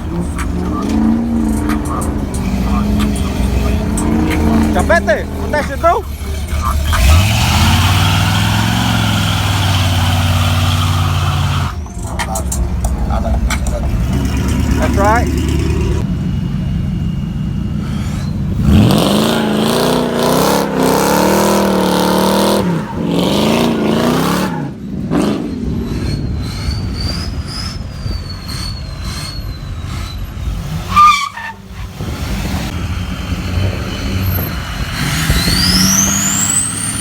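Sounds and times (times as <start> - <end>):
vehicle engine revving: 0.0 - 16.4, 17.0 - 27.5, 31.7 - 37.0
rising high whine: 0.0 - 27.8
sharp high squeal: 13.5 - 20.0, 20.9 - 31.8, 33.8 - 37.0.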